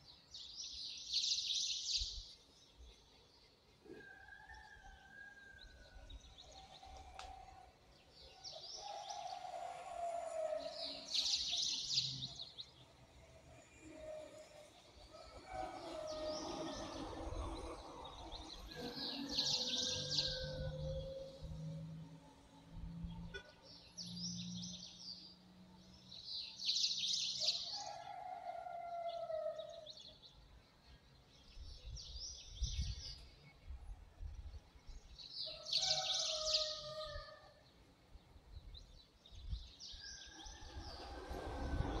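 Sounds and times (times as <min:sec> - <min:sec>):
low falling whistles: 0:40.2 - 0:42.0.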